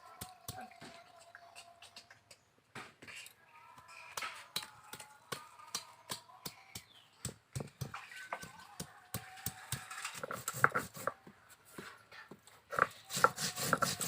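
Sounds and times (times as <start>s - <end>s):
sharp knocks and taps: 4.1s - 11.2s.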